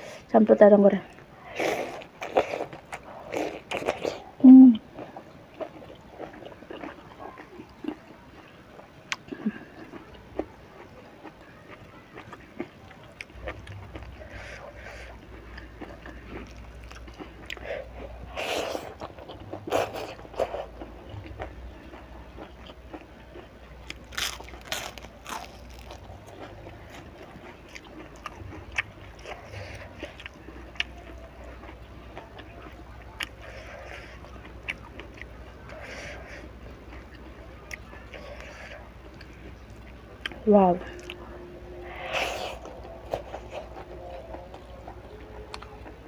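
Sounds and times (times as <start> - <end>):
crisp food chewing: 1.1 - 46.0
person humming low: 4.4 - 4.8.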